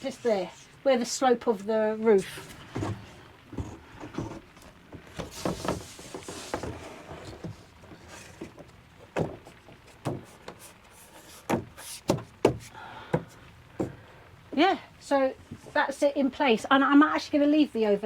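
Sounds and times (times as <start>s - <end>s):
knocks and bumps on timber panel: 8.4s - 10.6s, 11.4s - 14.0s.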